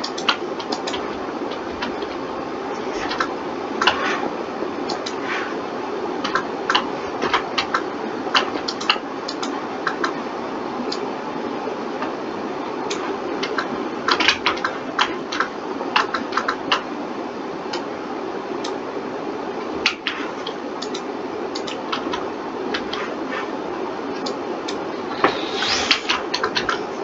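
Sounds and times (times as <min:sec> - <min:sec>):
keyboard and mouse clicking: 0:00.0 - 0:02.2, 0:04.9 - 0:05.2, 0:08.4 - 0:10.2, 0:20.8 - 0:23.0
computer fan hum: 0:00.0 - 0:27.0.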